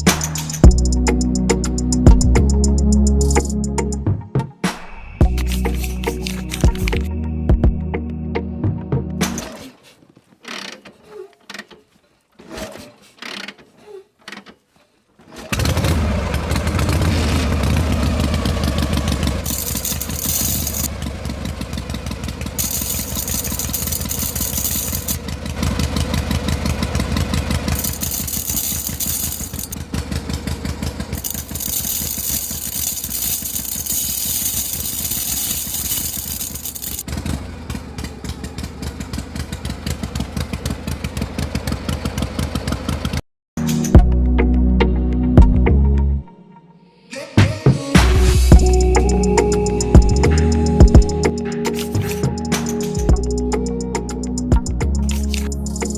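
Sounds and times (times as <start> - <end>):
small motor humming and rattling: 15.3 - 40.6.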